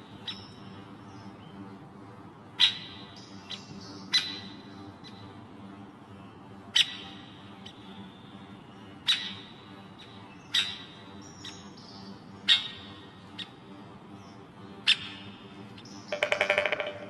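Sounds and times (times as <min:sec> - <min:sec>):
sharp bird calls: 0:10.2 - 0:13.6, 0:15.9 - 0:17.0.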